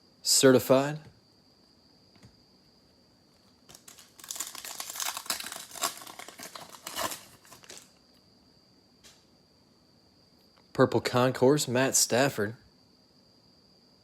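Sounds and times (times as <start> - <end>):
foil wrapper tearing and crinkling: 3.7 - 8.0.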